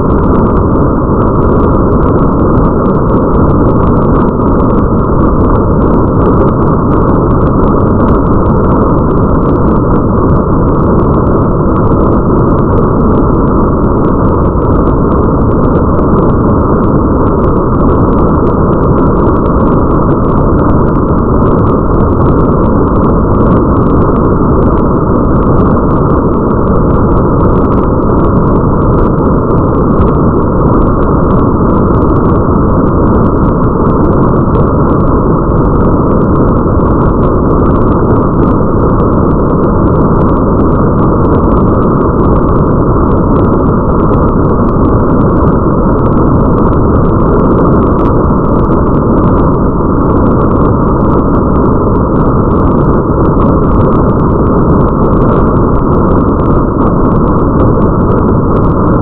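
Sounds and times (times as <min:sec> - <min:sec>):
deep rumble: 0:00.0 - 0:59.0
muffled rain: 0:00.0 - 0:59.0
faint raindrop ticks: 0:00.2 - 0:59.0.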